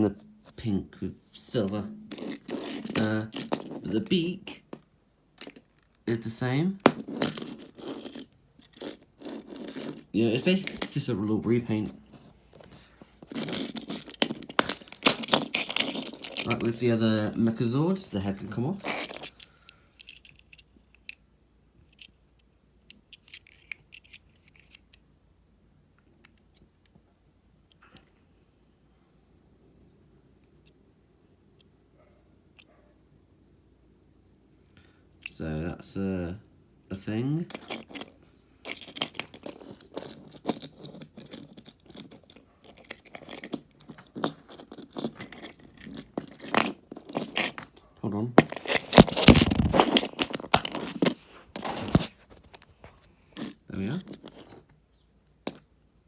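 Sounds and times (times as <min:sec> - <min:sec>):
plastic toy clicking and scraping: 0:02.1 - 0:04.1, 0:06.8 - 0:11.1, 0:12.6 - 0:17.0, 0:18.8 - 0:21.2, 0:21.8 - 0:25.0, 0:37.5 - 0:47.8, 0:48.4 - 0:52.6.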